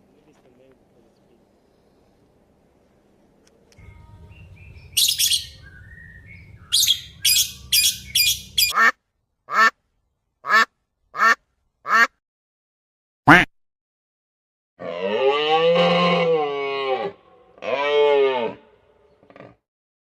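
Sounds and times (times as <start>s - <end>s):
faint low hum: 0.0s - 8.7s
bird squawks and chirps: 4.4s - 8.8s
short falling bird calls: 4.4s - 8.8s.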